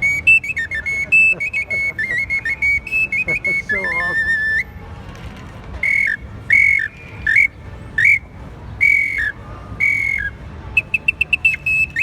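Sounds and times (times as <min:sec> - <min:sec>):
clay bird whistle: 0:00.0 - 0:04.7, 0:05.8 - 0:12.0.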